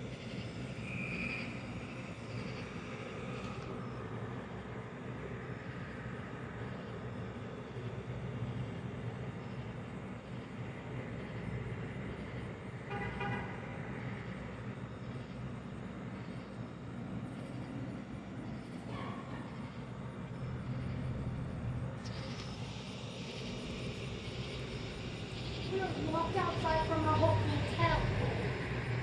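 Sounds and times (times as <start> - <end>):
traffic hum: 0.0 - 29.0
car horn toot: 12.9 - 13.6
bright hiss: 20.6 - 29.0.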